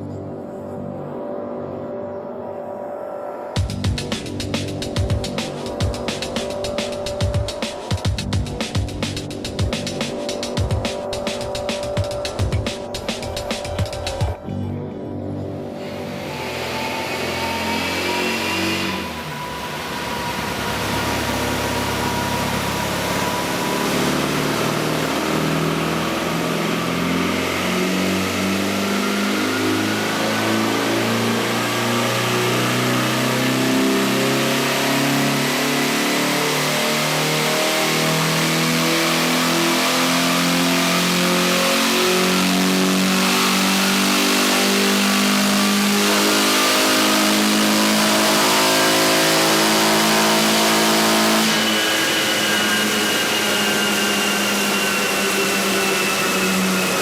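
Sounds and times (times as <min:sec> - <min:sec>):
race car engine revving under load: 0:15.8 - 0:57.0.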